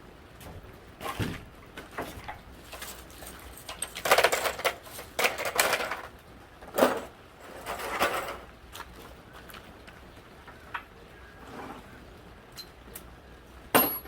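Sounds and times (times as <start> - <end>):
hand tools and metal clattering: 0.4 - 9.7, 12.5 - 13.1, 13.7 - 14.0.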